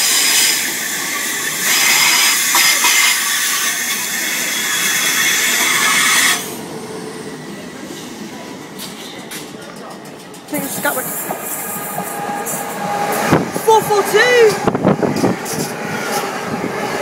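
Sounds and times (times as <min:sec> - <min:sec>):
hiss: 0:00.0 - 0:06.4
train passing: 0:00.0 - 0:17.0.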